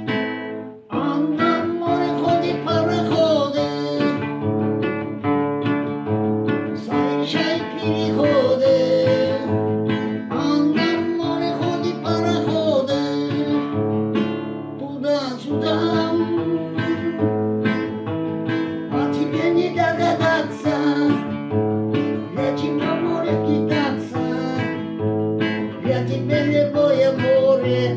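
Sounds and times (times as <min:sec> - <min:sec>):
acoustic guitar strumming: 0:00.0 - 0:27.9
person singing: 0:00.9 - 0:04.5, 0:06.7 - 0:13.8, 0:14.8 - 0:18.0, 0:18.8 - 0:21.5, 0:22.1 - 0:25.0, 0:25.7 - 0:27.9.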